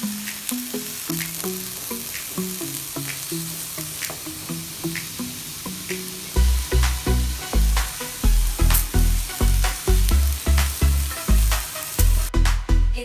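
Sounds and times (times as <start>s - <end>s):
food sizzling in a pan: 0.0s - 12.3s
music with pulsing bass: 0.0s - 13.0s.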